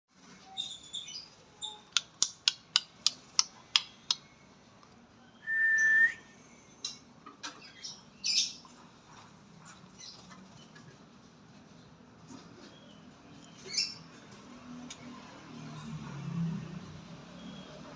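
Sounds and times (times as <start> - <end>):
bird whistle: 5.4 - 6.3.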